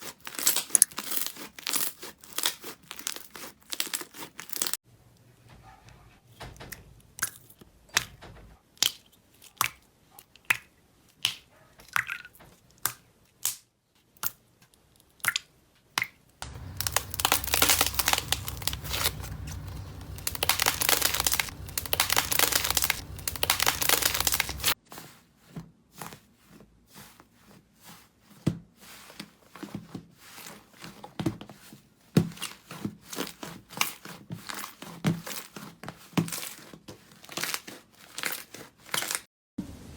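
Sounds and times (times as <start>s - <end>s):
slime popping and crackling: 16.4s - 24.8s.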